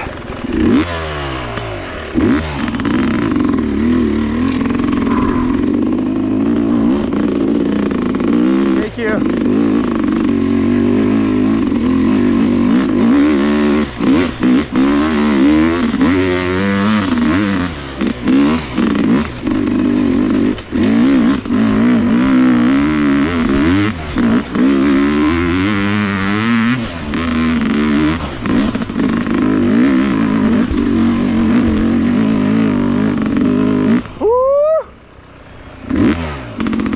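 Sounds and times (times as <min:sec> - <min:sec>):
dirt bike engine revving: 0:00.0 - 0:36.9
rising whine: 0:04.0 - 0:08.4.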